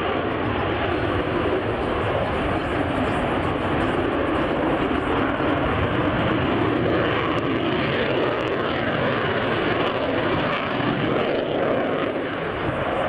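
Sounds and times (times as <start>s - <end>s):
airplane engine running: 0.0s - 13.0s.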